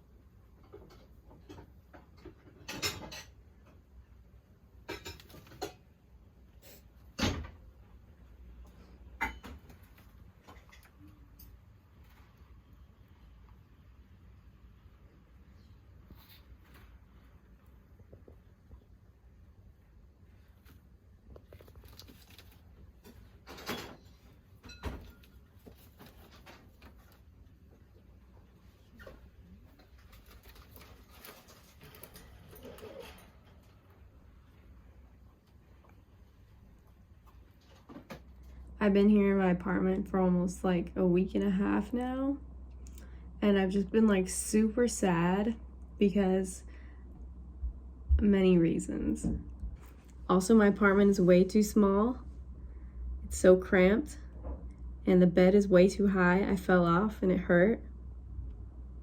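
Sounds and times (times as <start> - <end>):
low room hum: 0.0 - 59.0
rustling: 20.1 - 38.6
low hum: 38.3 - 59.0.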